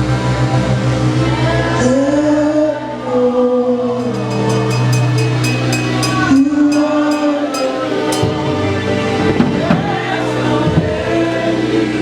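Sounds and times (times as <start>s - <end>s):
keyboard chords: 2.7s - 10.6s
cymbal strikes: 3.9s - 9.2s
drum kit: 4.0s - 10.0s.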